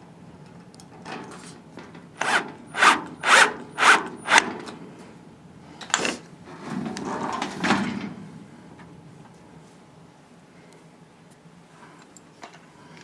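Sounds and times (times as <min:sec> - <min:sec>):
screwdriver click: 0:02.2 - 0:04.5
screw grinding into sheet metal: 0:02.2 - 0:04.6.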